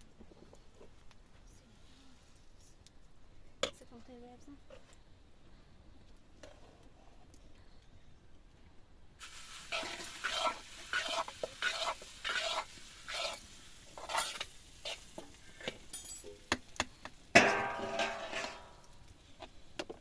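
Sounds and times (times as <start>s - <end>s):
metal spoon scraping in metal pot: 9.6s - 16.4s, 17.4s - 19.0s.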